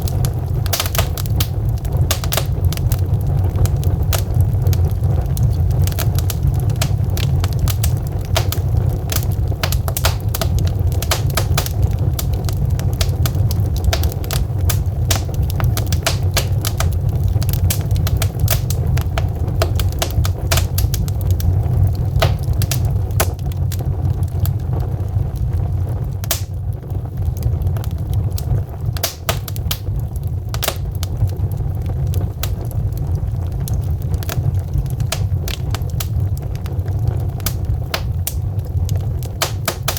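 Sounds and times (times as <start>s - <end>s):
logs popping and snapping: 0.0s - 3.0s, 4.0s - 23.4s, 26.2s - 26.6s, 28.9s - 31.2s, 32.4s - 32.7s, 37.3s - 39.9s
low rumble of fire: 0.0s - 39.9s.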